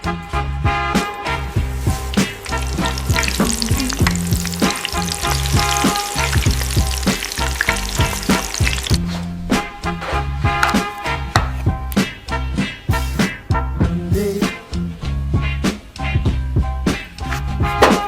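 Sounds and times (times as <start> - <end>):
background music: 0.0 - 18.0
food sizzling in hot oil: 1.3 - 9.0.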